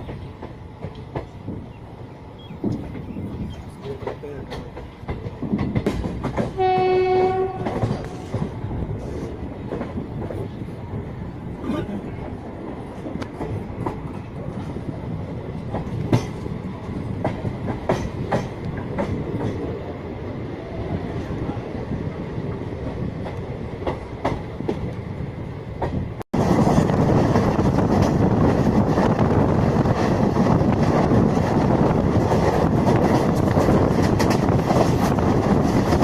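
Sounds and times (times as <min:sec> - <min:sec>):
train wheels clicking over rail joints: 0:00.0 - 0:01.8, 0:02.4 - 0:11.1, 0:12.2 - 0:19.8, 0:25.8 - 0:36.0
locomotive horn blast: 0:06.6 - 0:08.3.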